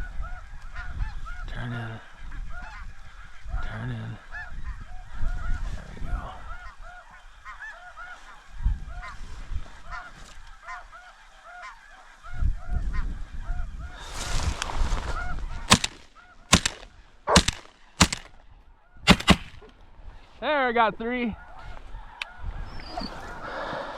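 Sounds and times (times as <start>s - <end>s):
shotgun shots: 15.7s - 18.3s, 19.1s - 19.7s
wind buffeting microphone: 21.4s - 23.5s.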